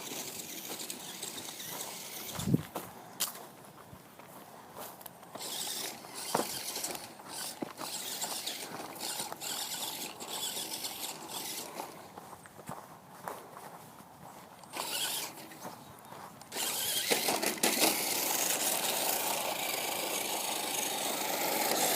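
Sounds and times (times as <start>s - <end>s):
toy car electric motor whirring: 0.0s - 2.7s, 5.3s - 12.1s, 14.7s - 15.6s, 16.4s - 21.9s.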